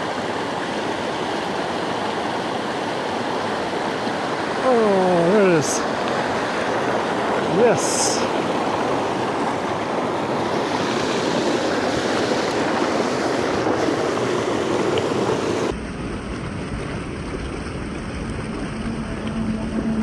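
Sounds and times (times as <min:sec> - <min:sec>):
creek water rushing: 0:00.0 - 0:15.8.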